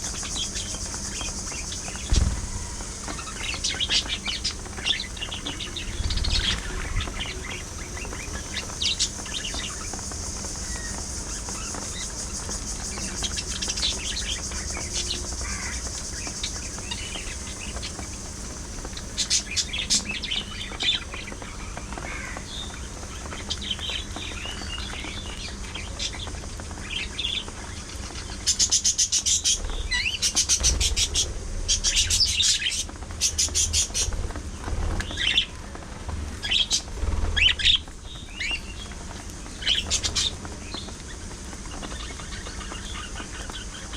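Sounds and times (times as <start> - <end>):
budgerigars chattering and chirping: 0.0 - 24.0.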